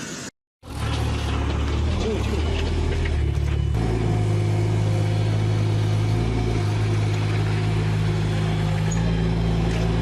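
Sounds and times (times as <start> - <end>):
vehicle engine humming: 0.6 - 10.0.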